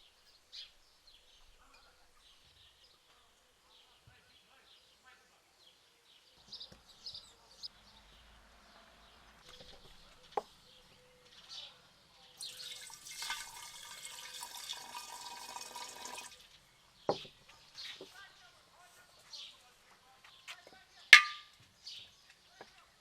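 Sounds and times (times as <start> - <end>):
water running from a tap: 12.4 - 16.4.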